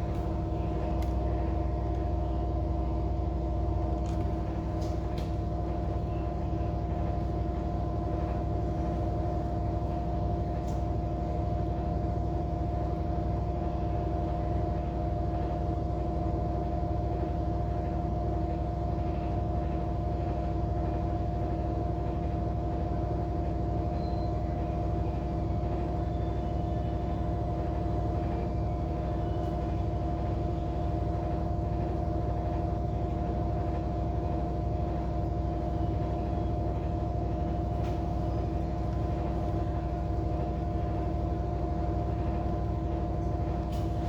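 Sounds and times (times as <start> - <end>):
air conditioner humming: 0.0 - 44.0.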